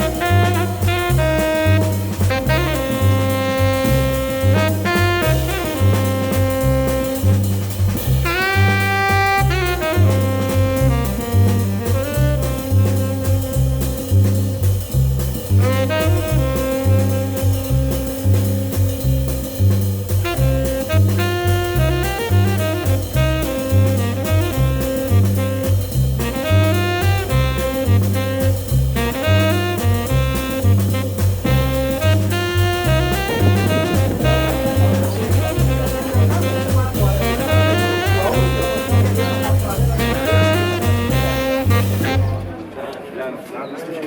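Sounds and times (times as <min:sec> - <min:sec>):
bass line: 0:00.0 - 0:42.6
jazz saxophone: 0:00.0 - 0:42.8
drums: 0:00.0 - 0:43.0.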